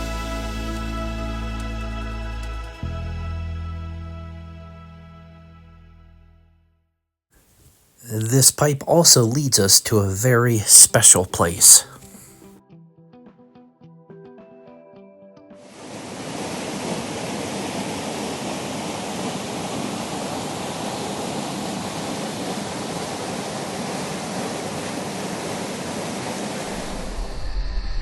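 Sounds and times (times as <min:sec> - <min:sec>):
river water rushing: 0:15.8 - 0:26.7.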